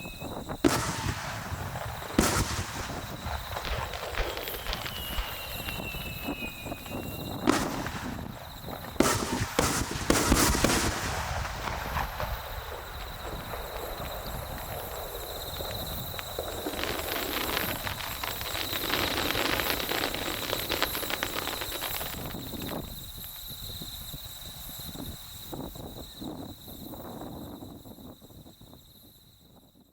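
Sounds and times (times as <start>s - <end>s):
firework shells bursting: 0.0s - 22.8s
dense firework crackling: 0.0s - 24.1s.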